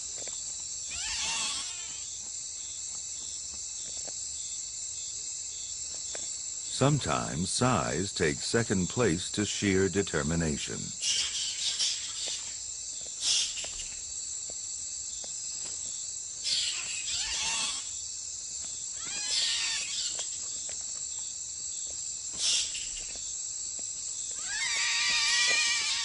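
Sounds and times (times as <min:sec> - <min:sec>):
night insects chorus: 0:00.0 - 0:26.0
bats squeaking and chittering: 0:00.9 - 0:02.1, 0:10.7 - 0:14.1, 0:16.4 - 0:18.0, 0:19.0 - 0:20.7, 0:22.3 - 0:23.3, 0:24.2 - 0:26.0.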